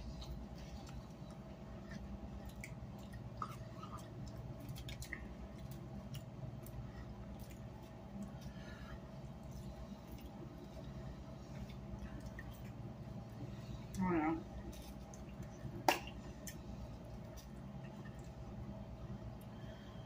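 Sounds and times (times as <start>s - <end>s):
person chewing: 0.0s - 10.9s
steady low hum: 0.0s - 20.0s.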